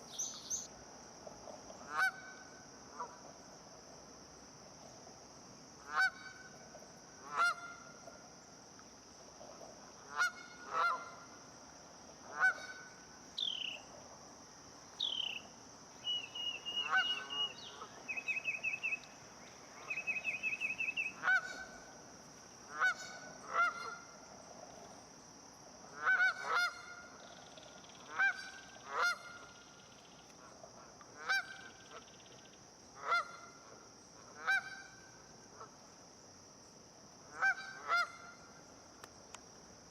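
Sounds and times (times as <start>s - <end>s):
bird whistles and trills: 16.0s - 19.0s
geese honking: 16.4s - 18.4s.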